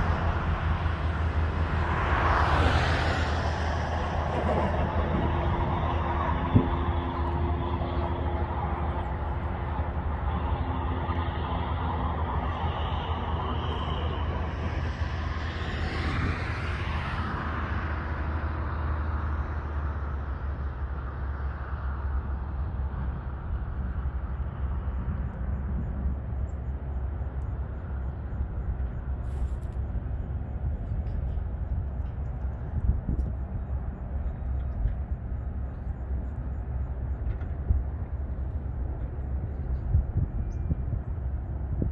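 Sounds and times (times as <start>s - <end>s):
jet engines whining and rumbling: 0.0s - 41.9s.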